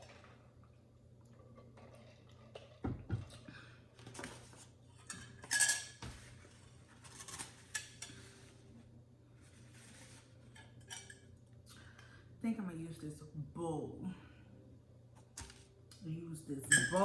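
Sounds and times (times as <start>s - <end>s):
utensils clinking against dishes: 5.0s - 6.3s, 7.1s - 8.4s, 10.5s - 11.3s, 16.6s - 17.0s.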